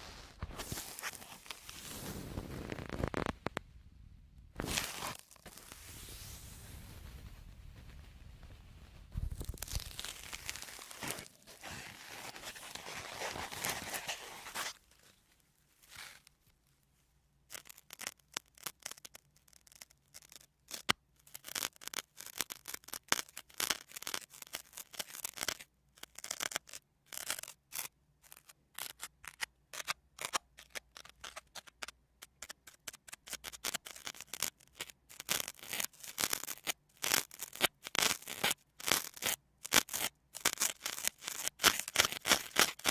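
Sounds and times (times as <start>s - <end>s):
sponge crisp crackles: 0.0s - 3.6s, 4.6s - 7.3s, 8.1s - 16.8s, 33.3s - 42.9s.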